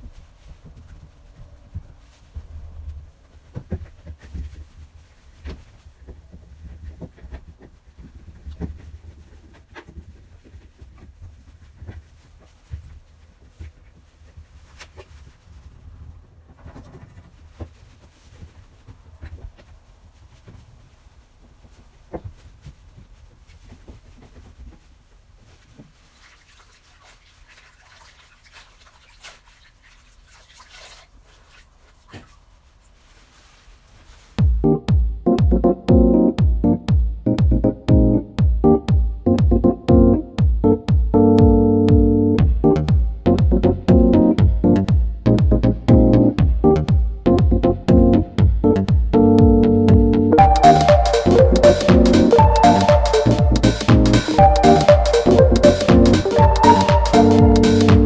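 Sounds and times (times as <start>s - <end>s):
rubbing and scrubbing: 25.5s - 34.4s.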